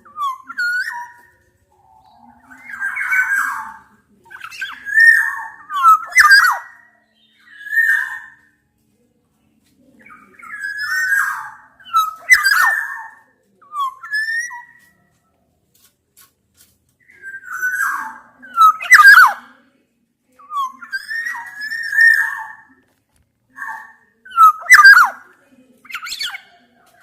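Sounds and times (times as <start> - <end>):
bird singing fluty whistles: 24.3 - 25.2.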